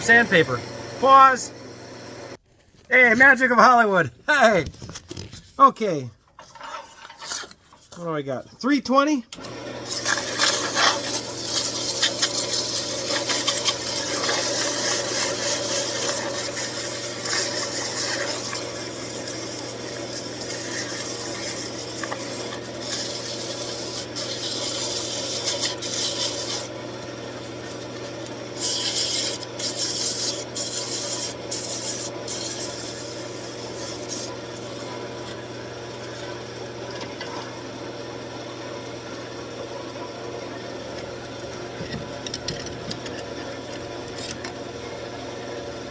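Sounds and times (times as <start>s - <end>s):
sandpaper rasping on spinning wood: 9.9s - 26.7s, 28.6s - 35.0s.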